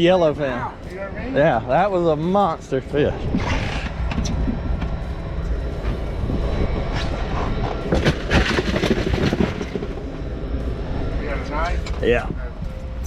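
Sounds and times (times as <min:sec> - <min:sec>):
knocks and clatters: 0:07.0 - 0:10.2.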